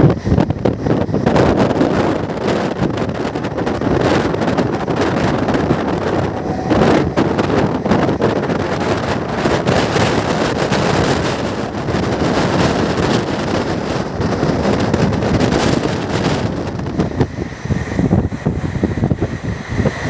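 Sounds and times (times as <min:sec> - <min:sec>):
train wheels on track: 0:00.0 - 0:20.0
wind buffeting microphone: 0:00.0 - 0:20.0.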